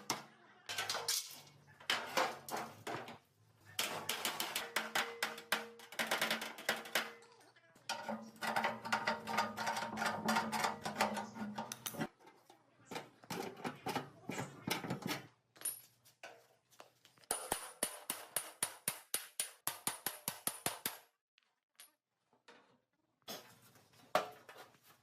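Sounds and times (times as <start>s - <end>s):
hand tools clinking on metal: 0.1s - 3.1s, 7.9s - 12.1s.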